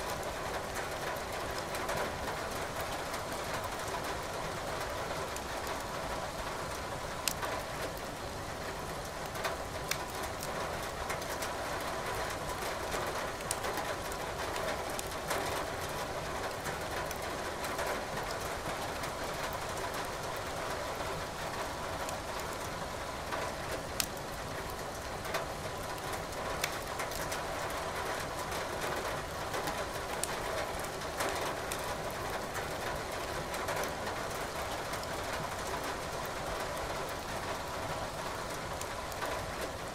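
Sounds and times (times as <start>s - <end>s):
rain hiss: 0.0s - 39.9s
wood fire crackling: 7.2s - 8.0s, 9.0s - 11.4s, 13.3s - 14.1s, 14.8s - 17.2s, 23.8s - 25.0s, 25.7s - 28.4s, 29.3s - 36.4s, 37.1s - 39.9s.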